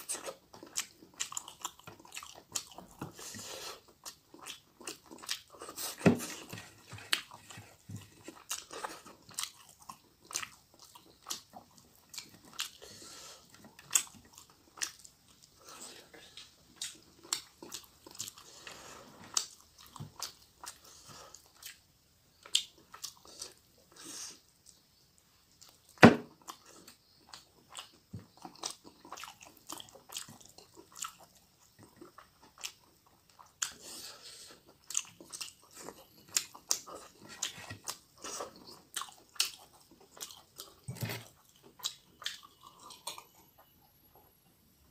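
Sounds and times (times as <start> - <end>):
wet chewing and mouth clicks: 0.0 - 44.3.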